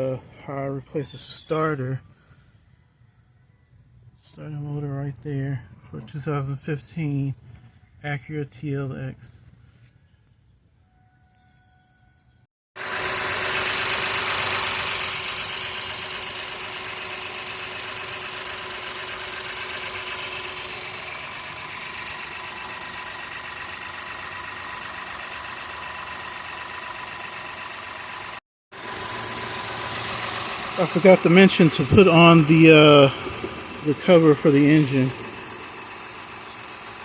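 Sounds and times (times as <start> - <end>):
car engine idling: 12.8 - 37.0.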